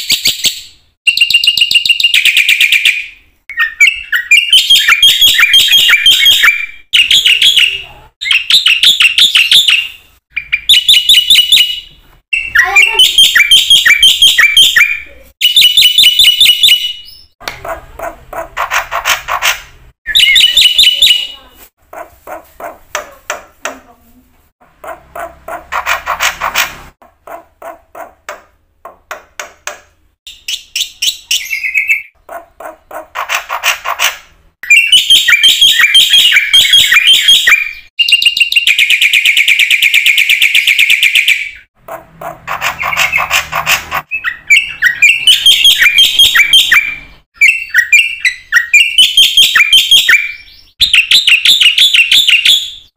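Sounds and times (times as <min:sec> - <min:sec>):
harsh bird rattle: 0:17.6 - 0:19.8, 0:24.8 - 0:28.1, 0:32.3 - 0:34.3, 0:41.9 - 0:44.1.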